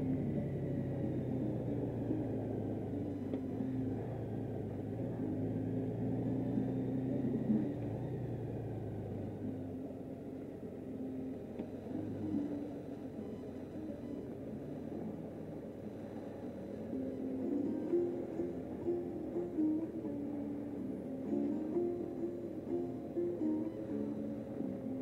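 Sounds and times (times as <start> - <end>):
motorcycle engine running: 0.0 - 12.9
road noise: 0.0 - 25.0.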